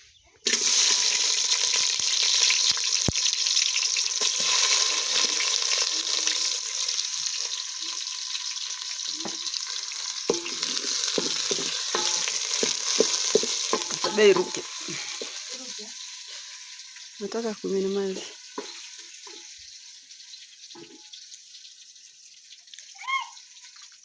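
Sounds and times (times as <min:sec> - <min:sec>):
food sizzling in hot oil: 0:00.4 - 0:24.0
stirring clicks and knocks: 0:10.3 - 0:15.4.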